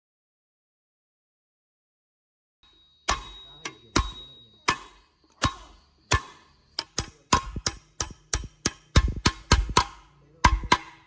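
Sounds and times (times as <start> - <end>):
sharp ringing strikes: 2.6 - 11.0.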